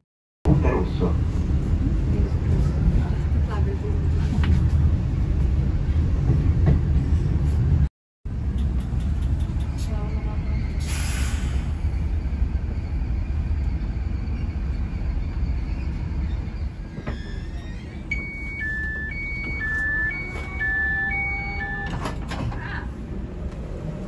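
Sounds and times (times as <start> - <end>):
train rumbling: 0.5 - 24.0
two-tone door warning beeps: 17.5 - 22.3
train door clicks: 21.6 - 22.6.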